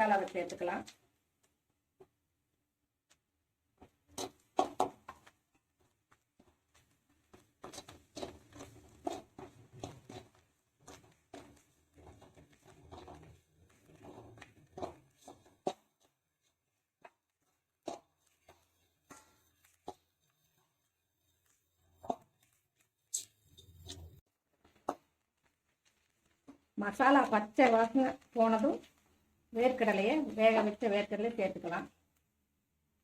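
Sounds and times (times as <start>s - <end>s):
spoon scraping and knocking pan: 3.8s - 29.0s.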